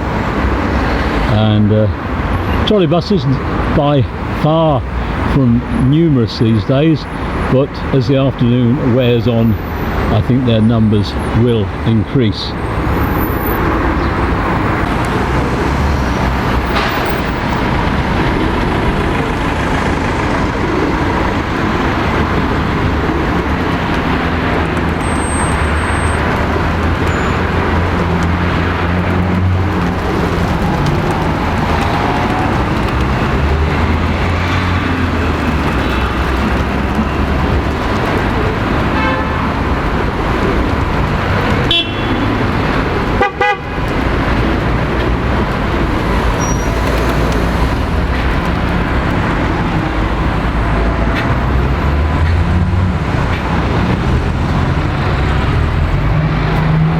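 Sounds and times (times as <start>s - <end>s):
heavy vehicles rumbling: 0.0s - 56.9s
road traffic: 0.0s - 56.9s
car horn toot: 39.0s - 39.5s, 41.7s - 42.4s, 43.2s - 43.8s.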